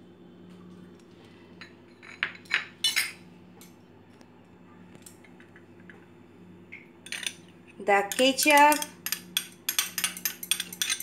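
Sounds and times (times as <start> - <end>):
faint steady hum: 0.0 - 11.0
spoon clinking against bowl: 8.1 - 11.0.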